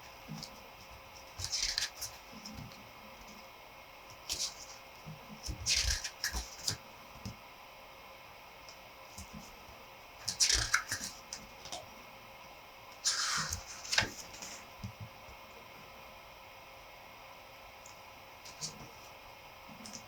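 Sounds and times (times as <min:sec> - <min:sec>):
paper rustling and tapping: 0:00.4 - 0:02.8, 0:05.4 - 0:07.4, 0:13.1 - 0:15.1.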